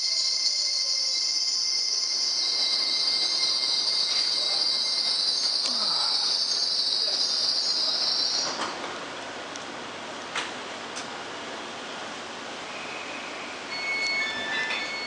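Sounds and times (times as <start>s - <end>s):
wheels hissing on rails: 0.0s - 9.4s
freight train passing: 0.0s - 15.0s.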